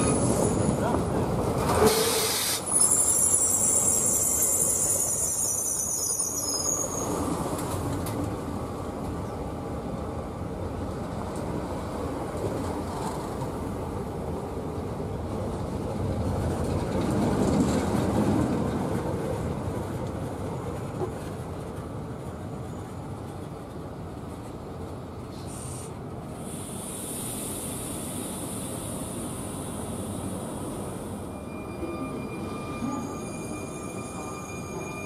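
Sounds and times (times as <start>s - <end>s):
train wheel squeals: 0.0s - 1.0s, 1.8s - 7.4s, 29.2s - 35.0s
passing train rumble: 0.0s - 35.0s.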